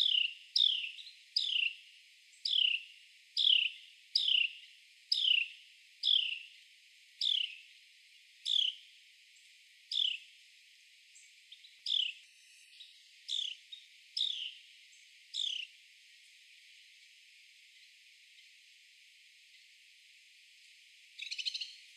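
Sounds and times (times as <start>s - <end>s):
wren chirping: 0.0s - 1.8s, 2.4s - 6.6s, 7.2s - 7.6s, 8.4s - 8.8s, 9.9s - 10.2s, 11.2s - 15.7s, 21.2s - 21.8s.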